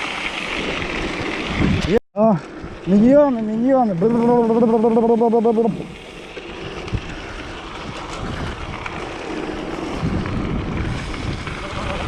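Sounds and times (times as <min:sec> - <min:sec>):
wind buffeting microphone: 0:00.7 - 0:02.0, 0:05.7 - 0:12.0.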